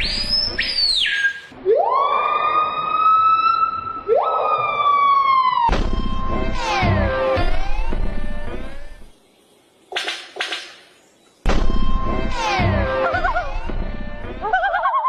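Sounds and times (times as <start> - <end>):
repeating music: 11.5 - 14.6.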